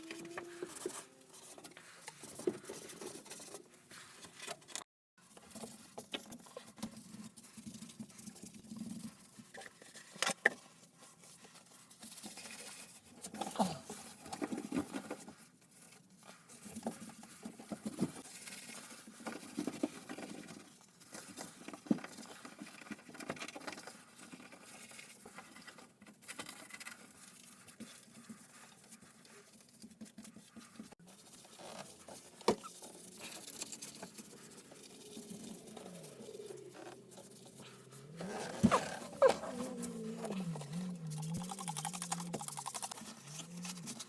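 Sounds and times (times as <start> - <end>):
scratching and rustling: 0.0 - 44.0.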